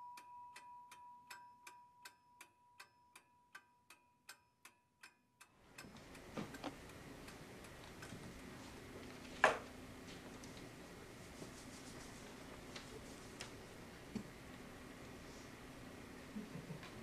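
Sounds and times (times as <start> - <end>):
clock ticking: 0.0 - 8.5
room hiss: 5.6 - 17.0.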